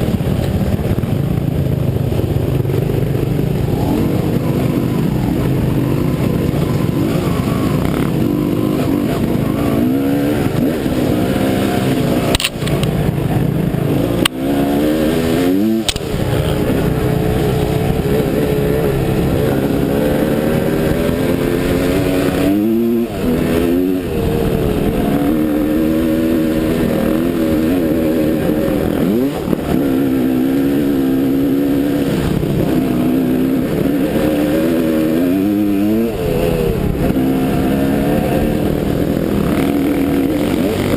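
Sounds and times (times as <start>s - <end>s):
dirt bike engine revving: 0.0s - 40.9s
sharp click: 12.3s - 12.9s, 15.8s - 16.1s.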